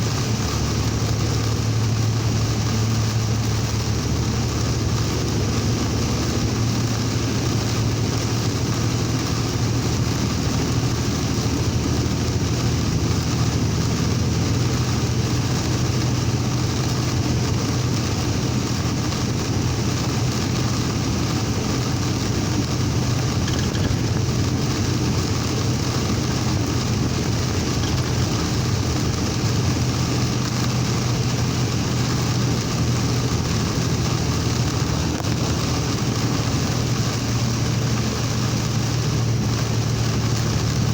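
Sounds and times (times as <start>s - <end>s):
engine and road drone: 0.0s - 40.9s
rain and tyre spray hiss: 0.0s - 40.9s.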